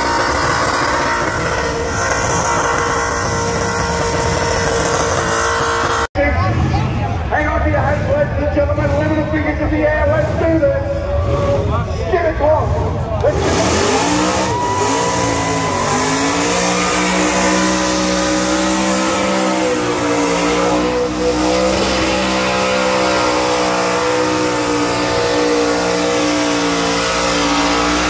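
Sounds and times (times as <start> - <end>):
car engine revving high: 0.0 - 7.1, 8.7 - 28.0.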